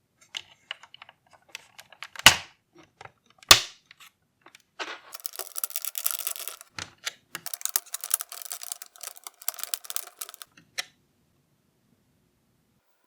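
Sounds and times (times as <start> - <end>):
plastic parts clicking and clattering: 4.5 - 10.5.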